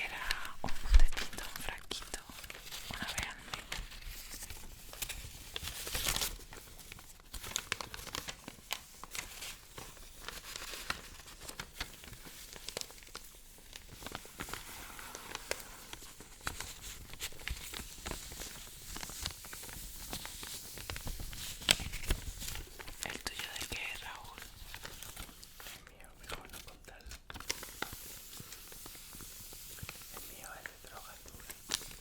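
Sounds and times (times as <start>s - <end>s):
paper crinkling and rustling: 0.0s - 32.0s.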